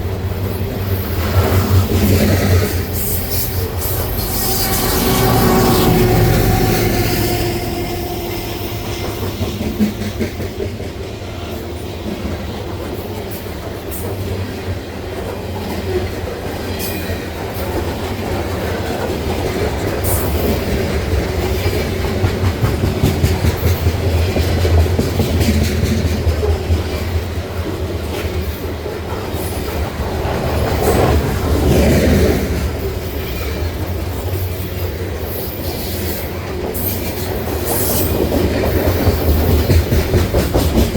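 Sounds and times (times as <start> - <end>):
freight train rumbling past: 0.0 - 40.9
wheels clacking over rail joints: 0.0 - 40.9
high-pitched wheel squeals: 3.0 - 9.7.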